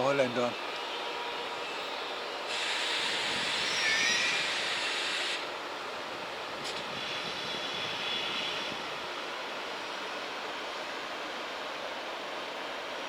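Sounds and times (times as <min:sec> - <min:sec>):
high-pitched wheel squeal: 0:03.0 - 0:05.0.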